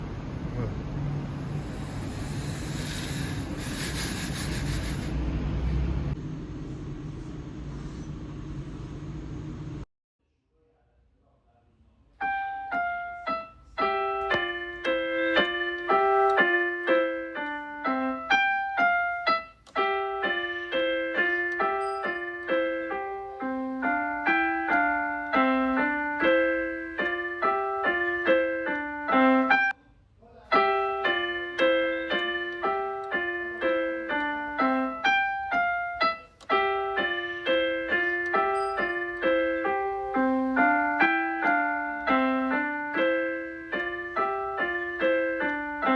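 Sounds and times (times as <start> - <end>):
piano notes: 12.2 - 29.8, 30.5 - 45.9.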